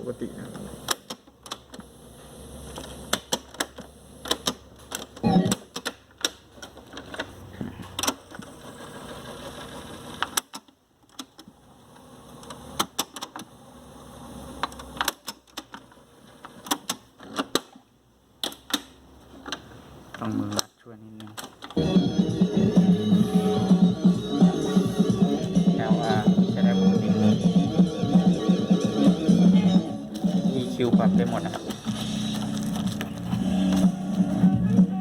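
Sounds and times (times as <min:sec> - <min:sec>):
tape transport whirring: 0:04.2 - 0:05.8, 0:21.6 - 0:35.0.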